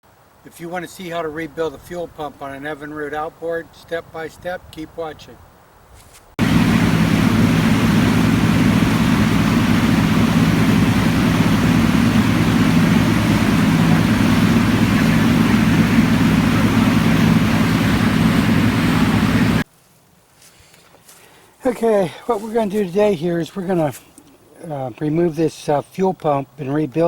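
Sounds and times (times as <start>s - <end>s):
wind and water noise: 0.1s - 19.6s
outboard motor running: 6.4s - 19.6s.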